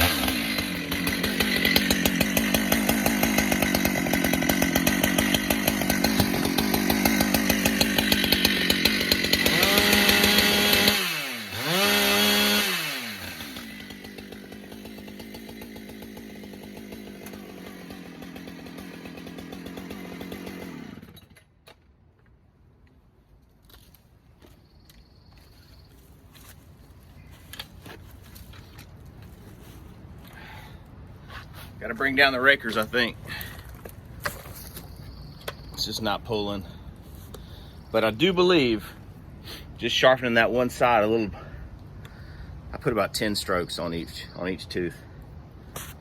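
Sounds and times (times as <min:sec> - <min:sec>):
chainsaw running through a cut: 0:00.0 - 0:21.5.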